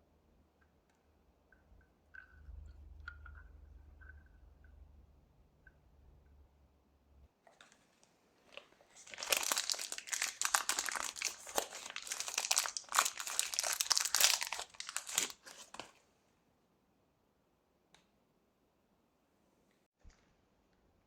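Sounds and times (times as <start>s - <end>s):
crinkly material crackling: 7.4s - 16.0s.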